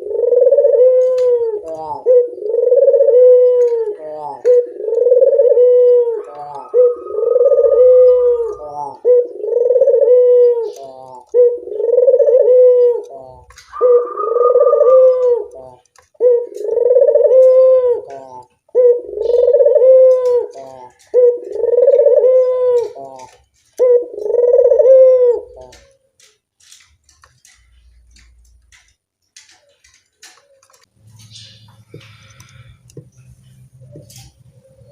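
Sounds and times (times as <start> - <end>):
dove cooing: 0.0 - 26.0.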